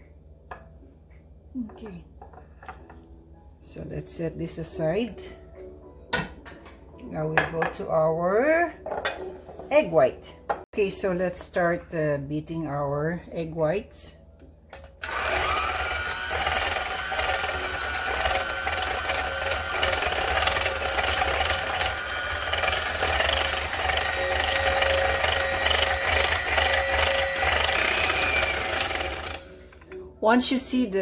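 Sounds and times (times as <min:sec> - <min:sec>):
electric mixer motor whining: 0:15.0 - 0:29.8.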